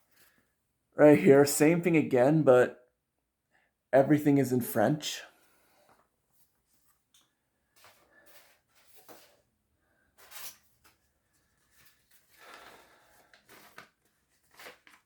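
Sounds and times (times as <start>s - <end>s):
paper rustling: 5.8s - 9.5s, 10.1s - 15.0s.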